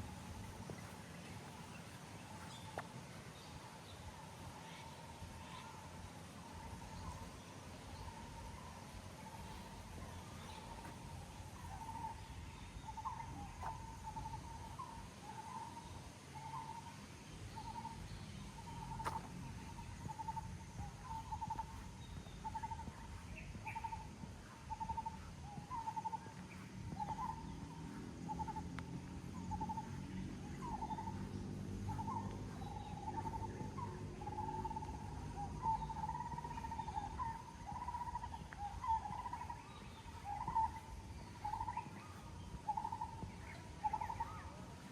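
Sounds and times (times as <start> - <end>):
outdoor background noise: 0.0 - 44.9
low droning hum: 17.1 - 44.9.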